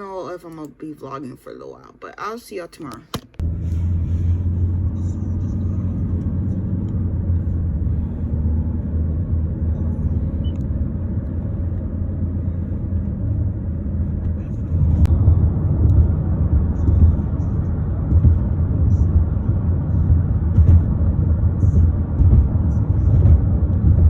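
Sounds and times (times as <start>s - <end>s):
car engine rumbling: 3.0s - 24.0s.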